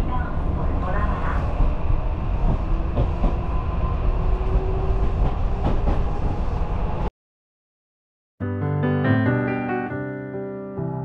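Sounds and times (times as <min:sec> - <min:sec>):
train interior rumble: 0:00.0 - 0:07.1.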